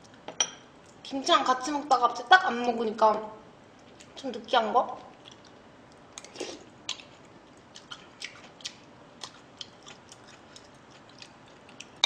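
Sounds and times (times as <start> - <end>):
wet chewing mouth clicks: 5.0 - 12.0.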